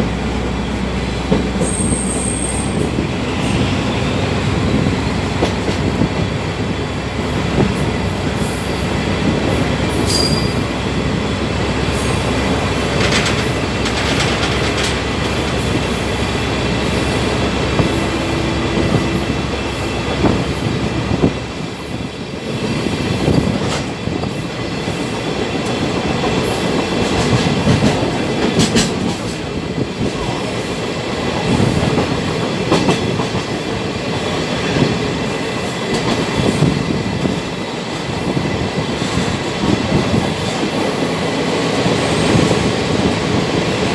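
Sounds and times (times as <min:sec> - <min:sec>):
wheels clacking over rail joints: 0:00.0 - 0:22.0, 0:22.7 - 0:43.9
train wheels rumbling and rattling: 0:00.0 - 0:43.9
high wheel squeals: 0:01.6 - 0:04.1, 0:07.2 - 0:10.9.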